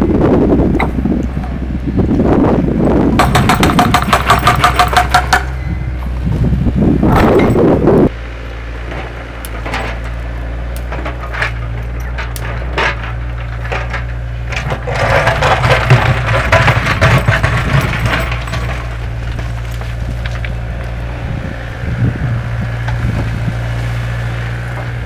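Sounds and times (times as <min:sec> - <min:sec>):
heavy machine engine running: 0:00.0 - 0:25.0
knocks: 0:03.2 - 0:05.6
wood cracking and snapping: 0:08.9 - 0:21.2.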